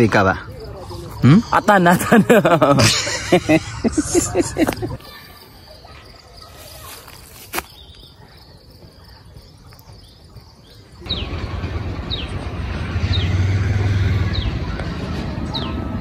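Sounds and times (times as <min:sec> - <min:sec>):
high falling chirps: 0:00.3 - 0:08.3.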